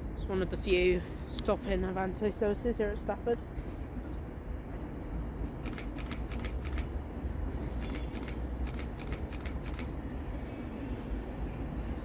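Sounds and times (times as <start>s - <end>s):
steady low rumble: 0.0s - 12.0s
camera shutter clicks: 5.6s - 6.9s, 7.8s - 9.9s.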